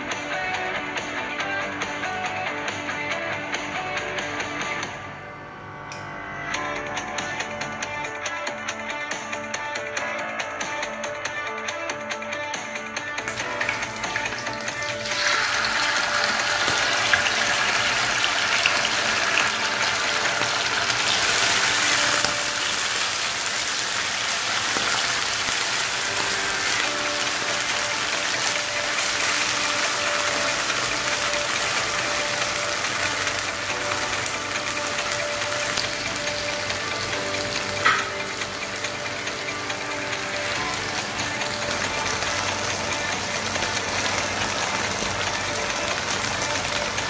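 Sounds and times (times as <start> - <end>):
meat sizzling in hot oil: 13.2 - 47.0.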